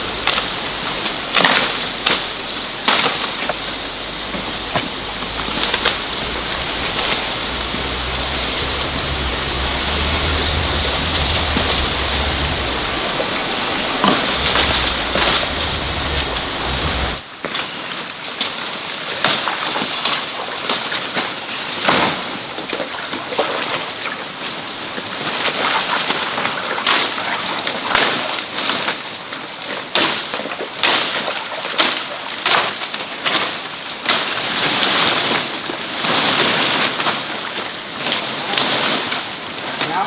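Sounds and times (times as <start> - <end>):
steady hiss: 0.0 - 17.3
water splashing and sloshing: 0.0 - 40.0.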